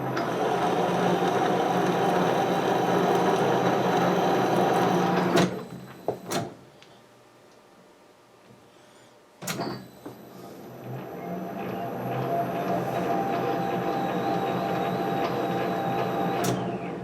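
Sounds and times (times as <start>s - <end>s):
metal lathe whirring: 0.0s - 5.4s.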